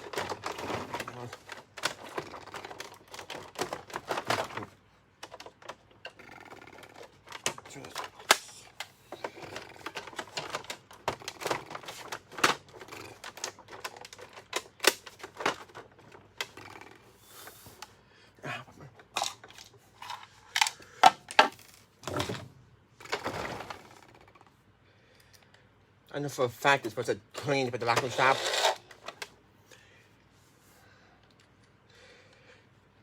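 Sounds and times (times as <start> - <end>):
plastic parts clicking and clattering: 0.0 - 17.9, 18.9 - 24.6, 27.4 - 29.4.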